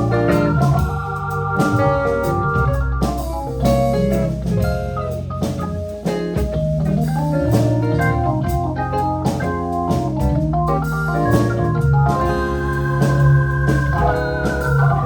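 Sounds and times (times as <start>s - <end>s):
drum kit: 0.0s - 15.0s
organ chords: 0.0s - 15.0s
electric guitar lines: 11.0s - 15.0s.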